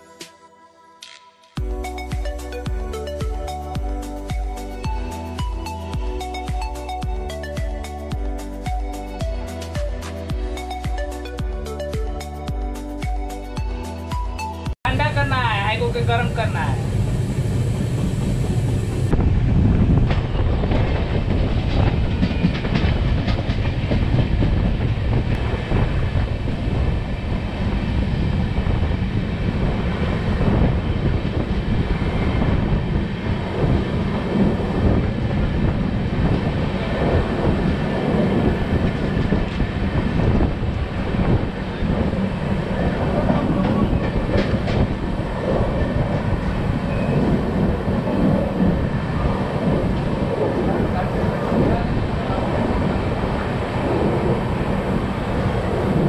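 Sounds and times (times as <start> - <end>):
rumble of wheels on rail: 14.9 - 56.0.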